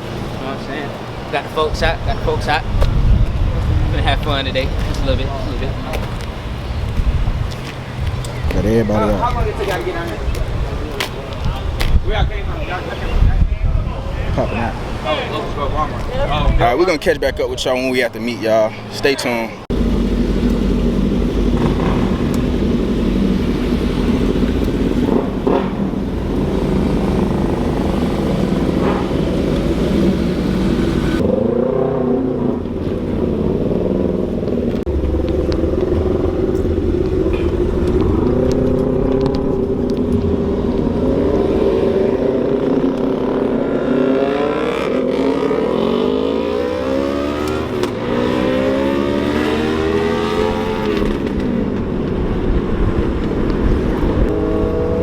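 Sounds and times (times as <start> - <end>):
vehicle engines running: 0.0 - 55.0
engines revving: 13.9 - 55.0.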